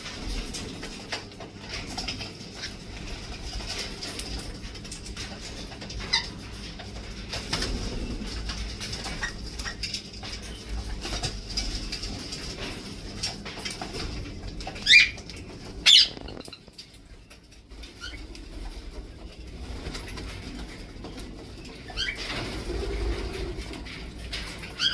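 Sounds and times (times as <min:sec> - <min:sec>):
small clicks and rustling: 0:00.0 - 0:24.9
parrot calls: 0:14.8 - 0:15.2, 0:15.8 - 0:16.6.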